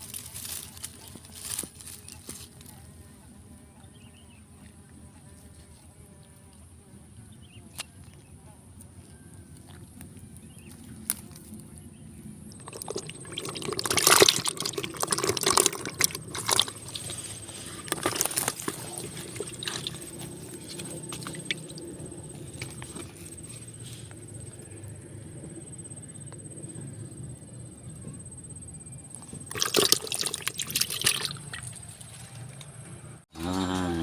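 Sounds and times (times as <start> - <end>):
water splashing and sloshing: 12.5 - 23.3, 29.3 - 32.5.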